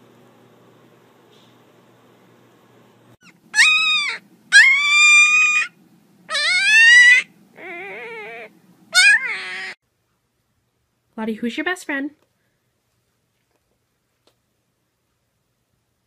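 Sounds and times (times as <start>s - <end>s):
puppy howling: 3.2s - 9.8s.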